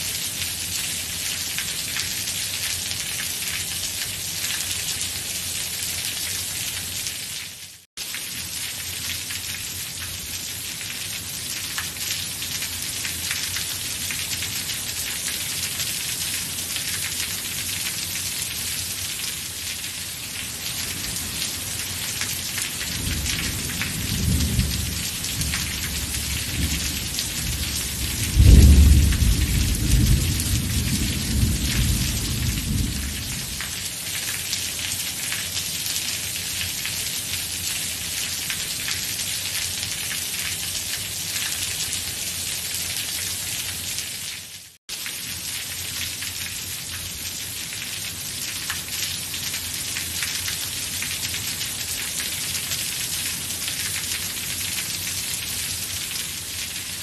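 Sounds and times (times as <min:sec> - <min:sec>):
heavy rain falling: 0:00.0 - 0:57.0
thunder rumbling and clapping: 0:26.4 - 0:33.7.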